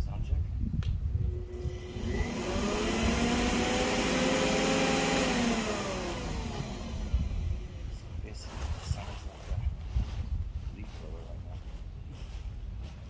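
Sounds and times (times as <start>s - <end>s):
electric wood chipper motor whine: 1.2s - 8.7s.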